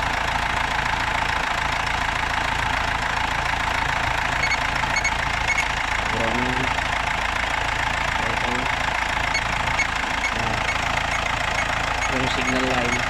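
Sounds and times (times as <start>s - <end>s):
diesel engine idling: 0.0s - 13.0s
short high beeps: 4.4s - 5.7s, 9.4s - 13.0s.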